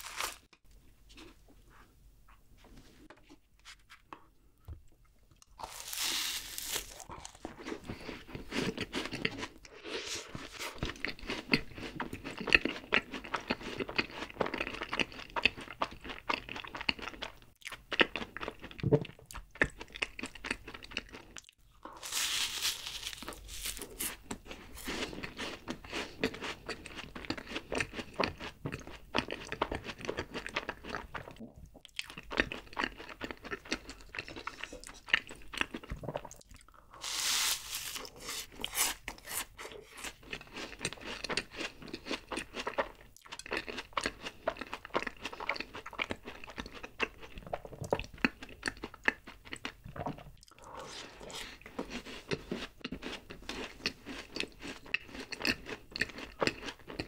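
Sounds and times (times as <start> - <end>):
crisp pastry crunching: 0.0 - 0.6, 5.4 - 9.5, 19.7 - 28.2, 37.0 - 47.2.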